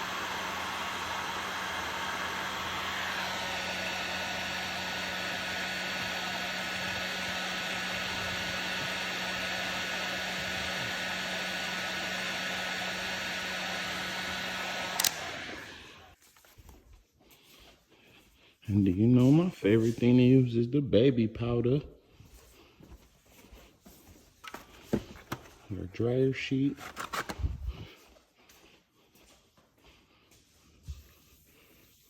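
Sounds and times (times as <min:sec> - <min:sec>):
fan running down: 0:00.0 - 0:16.2
heat gun blowing: 0:00.0 - 0:16.2
switch click: 0:15.0 - 0:15.3.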